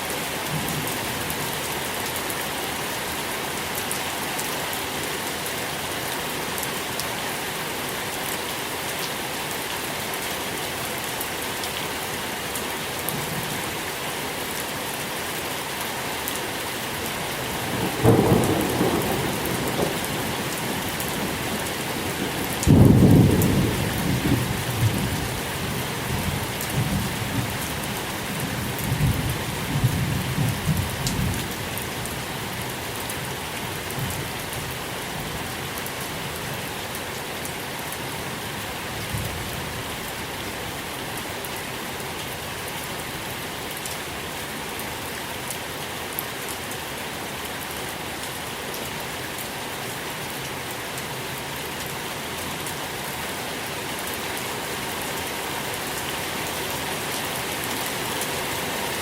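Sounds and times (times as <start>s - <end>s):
steady rain falling: 0.0s - 59.0s
thunder rumbling: 17.6s - 25.3s.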